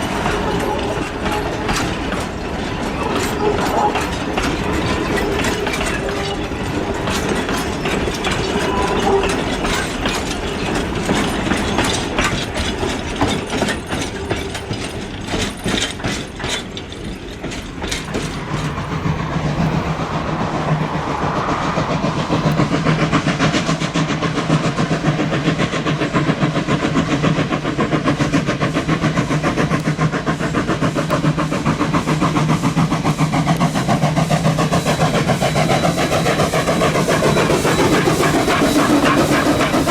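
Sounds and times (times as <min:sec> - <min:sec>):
train wheels clicking over rail joints: 0:00.0 - 0:39.9
steady engine hum: 0:04.0 - 0:24.5.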